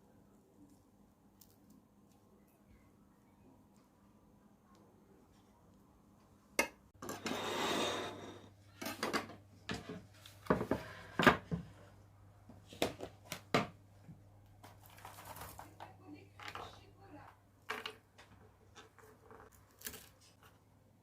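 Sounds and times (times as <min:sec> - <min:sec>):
faint low hum: 0:00.0 - 0:06.6
dishes and utensils clattering: 0:06.6 - 0:11.6
rustling: 0:14.5 - 0:16.8.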